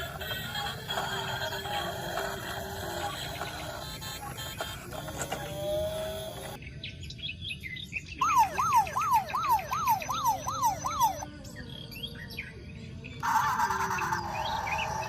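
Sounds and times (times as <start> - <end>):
electronic toy siren wail: 0.0 - 6.6, 8.2 - 11.3, 13.2 - 15.0
high electronic chirps: 8.2 - 11.3.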